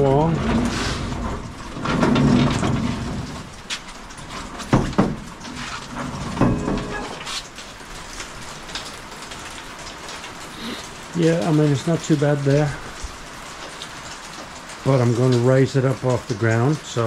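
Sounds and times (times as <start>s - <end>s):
sharp knocks and bumps: 0.0s - 7.5s
rain pattering on a roof: 0.0s - 17.0s.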